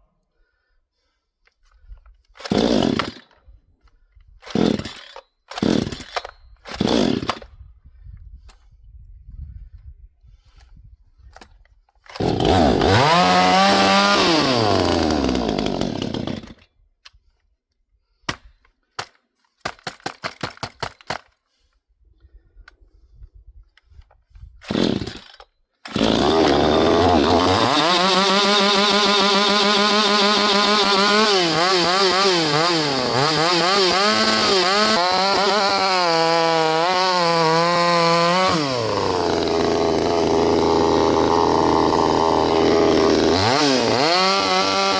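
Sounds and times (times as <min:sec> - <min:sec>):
chainsaw pull-start cranking: 0:02.3 - 0:03.4, 0:04.4 - 0:07.5, 0:12.0 - 0:16.6, 0:24.6 - 0:44.9
chainsaw engine running and revving: 0:02.5 - 0:03.2, 0:05.6 - 0:06.0, 0:06.8 - 0:07.3, 0:12.2 - 0:16.5, 0:24.7 - 0:25.2, 0:25.9 - 0:44.9.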